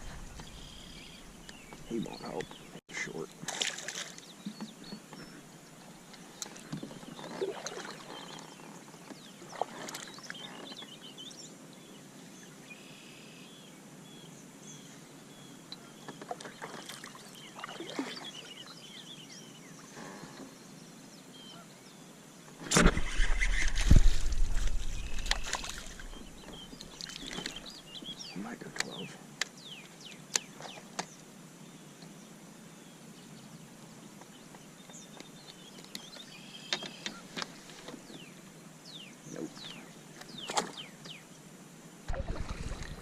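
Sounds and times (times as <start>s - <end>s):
low rumbling rush on microphone: 0.0s - 2.8s, 22.9s - 26.8s, 42.1s - 43.0s.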